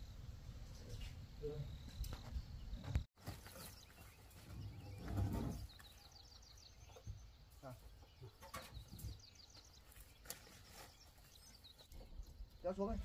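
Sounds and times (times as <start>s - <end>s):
bird chirping: 0.5s - 13.0s
wooden pole rustling scrape: 3.2s - 5.9s, 9.9s - 11.9s.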